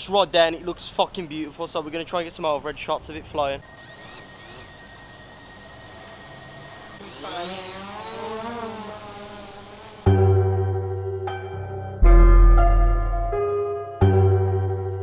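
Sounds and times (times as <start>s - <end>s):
drone motors and propellers whining: 3.1s - 10.1s
music with low piano notes: 10.1s - 15.0s.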